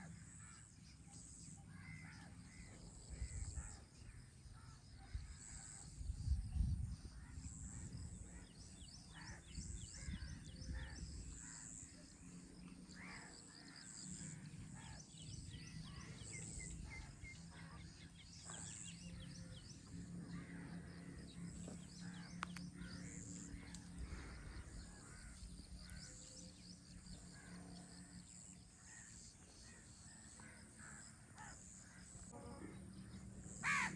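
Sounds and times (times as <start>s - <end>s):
crows cawing: 28.8s - 32.3s, 33.5s - 33.9s.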